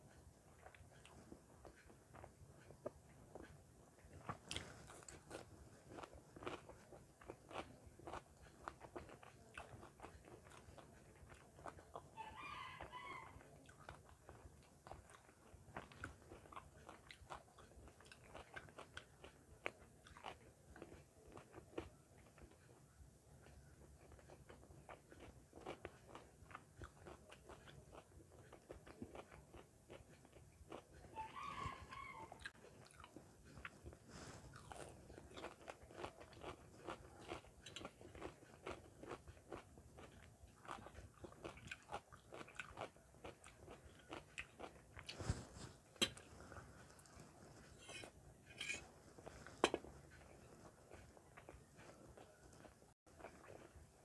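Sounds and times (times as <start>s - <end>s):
person chewing and crunching food: 0.0s - 54.0s.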